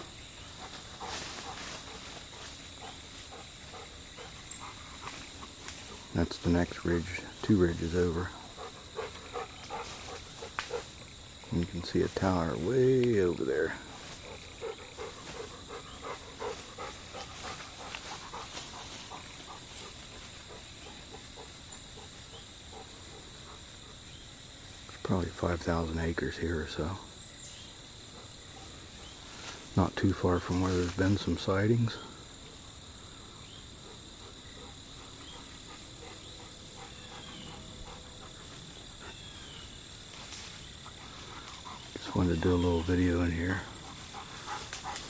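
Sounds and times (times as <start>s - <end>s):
faint rustles: 0.0s - 25.0s, 27.4s - 45.0s
high-pitched insect drone: 0.0s - 45.0s
dog panting: 0.6s - 6.1s, 8.4s - 11.0s, 13.8s - 24.1s, 33.8s - 39.3s, 40.8s - 42.0s, 43.7s - 45.0s.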